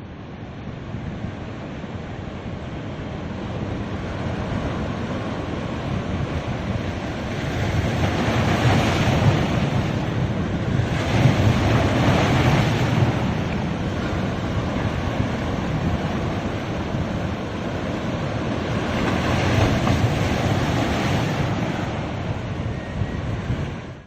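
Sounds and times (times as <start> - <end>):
ocean surf washing onto beach: 0.0 - 24.0
wind buffeting microphone: 0.7 - 24.0.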